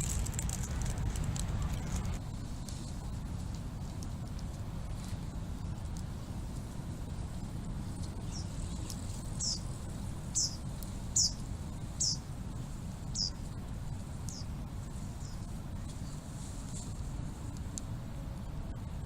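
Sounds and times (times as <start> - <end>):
low rumble: 0.0 - 19.0
small bird calling: 8.2 - 9.7, 10.3 - 12.3, 13.1 - 13.4, 14.3 - 14.5.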